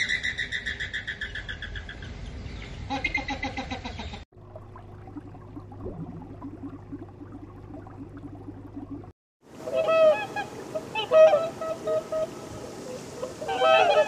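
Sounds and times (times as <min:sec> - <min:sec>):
low hum: 0:04.4 - 0:09.1
waterfowl honking: 0:09.6 - 0:14.0.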